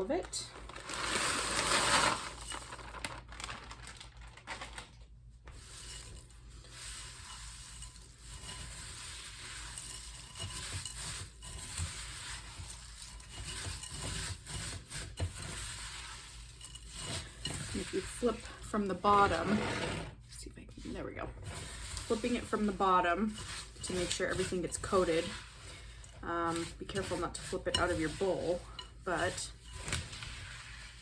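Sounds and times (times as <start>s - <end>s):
noodles pouring from a bag: 0.3s - 14.4s
dry noodles scraping in a bowl: 0.8s - 2.8s, 5.5s - 31.0s.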